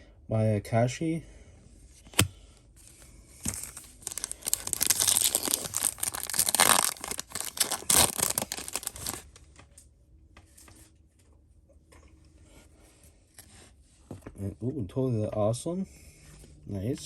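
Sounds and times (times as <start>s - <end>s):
foil pack tearing and crinkling: 3.4s - 9.3s.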